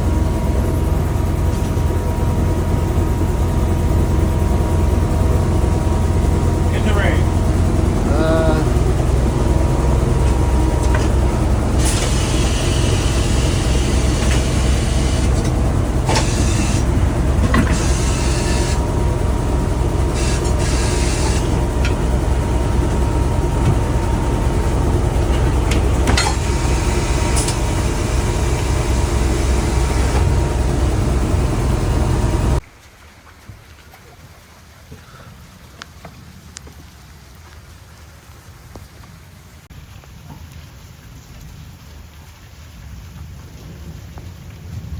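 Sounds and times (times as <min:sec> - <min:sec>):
vehicle engine rumbling: 0:00.0 - 0:32.7
hissing: 0:06.4 - 0:32.6.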